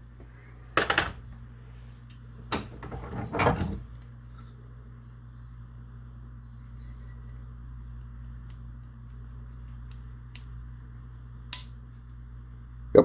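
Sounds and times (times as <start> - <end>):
low steady hum: 0.0 - 13.0
scraping clatter: 2.5 - 3.9.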